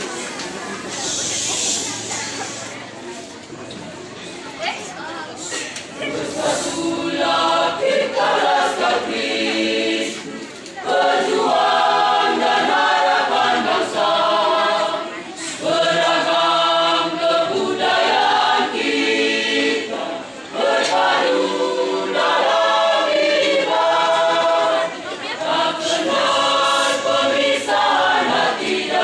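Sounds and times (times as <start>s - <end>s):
choir singing in harmony: 6.0s - 29.0s.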